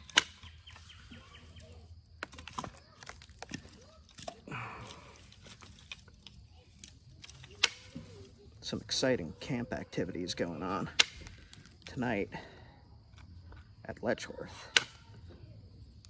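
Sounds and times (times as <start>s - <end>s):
stone flakes snapping clicks: 0.0s - 8.1s, 11.0s - 11.9s, 14.7s - 15.0s.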